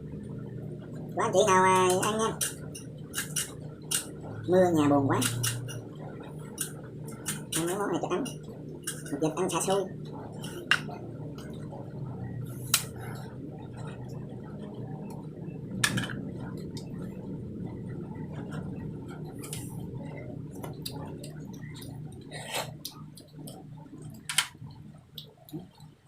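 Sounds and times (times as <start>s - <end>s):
low hum: 0.0s - 26.0s
slurping and sucking: 22.3s - 22.9s.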